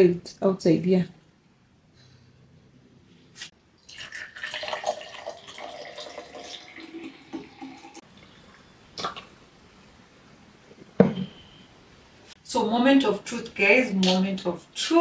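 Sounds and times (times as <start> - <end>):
liquid pouring into glass: 3.8 - 8.0.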